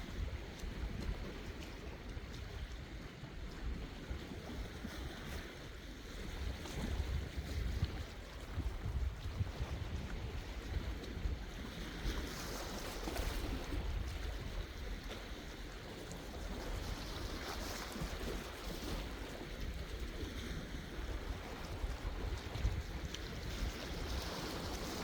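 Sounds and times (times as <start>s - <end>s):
sea waves breaking: 0.0s - 25.0s
wind rumble on microphone: 0.0s - 25.0s.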